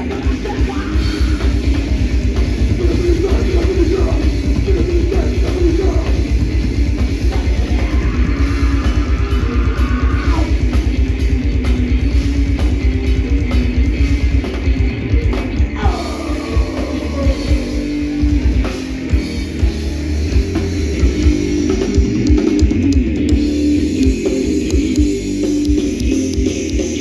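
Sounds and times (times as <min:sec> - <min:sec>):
metal band playing: 0:00.0 - 0:27.0
shouted vocals: 0:07.3 - 0:10.6, 0:15.7 - 0:18.6.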